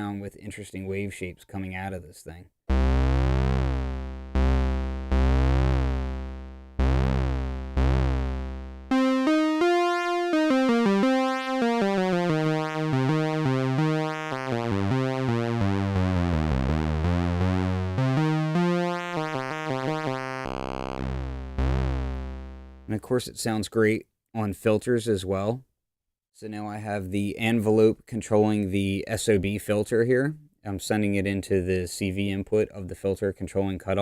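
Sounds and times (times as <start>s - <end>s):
analog synthesizer pulse-wave notes: 2.7s - 22.9s.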